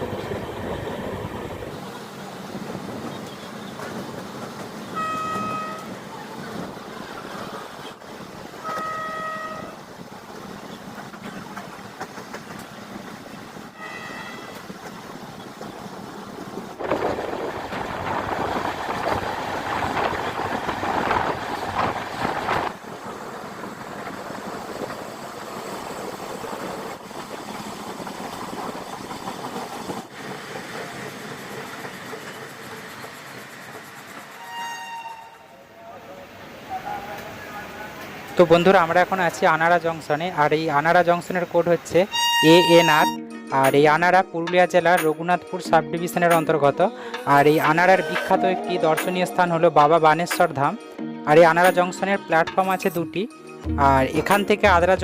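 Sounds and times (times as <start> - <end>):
train rumbling on rails: 0.0 - 44.1
train horn: 4.9 - 6.0, 8.6 - 9.9, 13.8 - 14.7, 34.4 - 35.6, 42.1 - 43.2.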